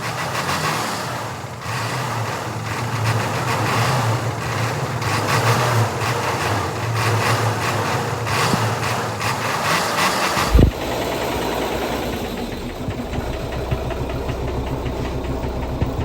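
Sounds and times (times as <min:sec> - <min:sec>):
truck engine running: 0:10.2 - 0:16.0.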